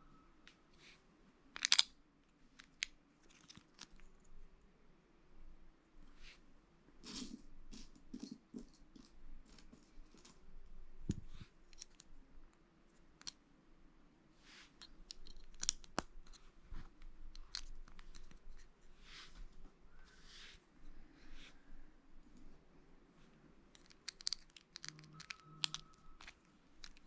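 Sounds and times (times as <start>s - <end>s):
plastic bricks clicking and snapping: 1.6s - 1.9s, 14.8s - 16.4s, 17.3s - 18.4s, 23.7s - 27.0s
pieces rustling: 23.7s - 27.0s.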